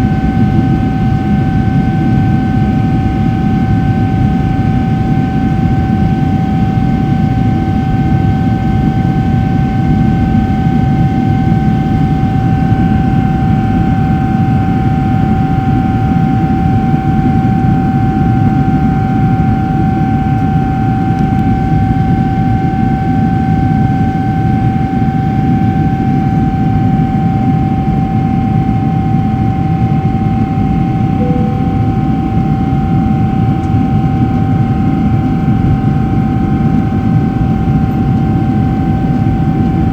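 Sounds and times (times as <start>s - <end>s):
jet engine roar in cabin: 0.0s - 39.9s
steady engine whine: 30.9s - 33.4s.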